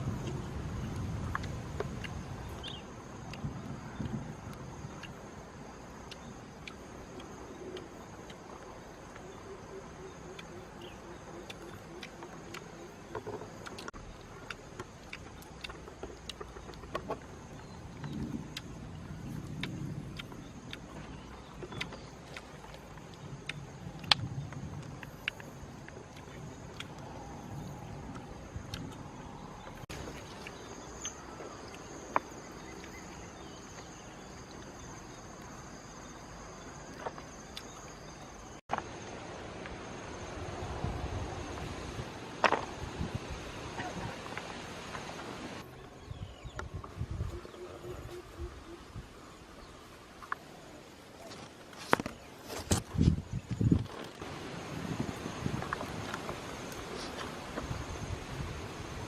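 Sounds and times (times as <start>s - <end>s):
background hiss: 0.0s - 59.0s
insects chirring: 0.0s - 59.0s.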